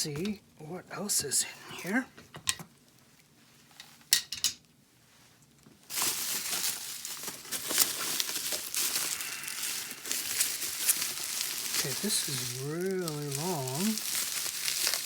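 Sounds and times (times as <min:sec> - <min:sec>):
packing material rustling: 0:05.8 - 0:15.0.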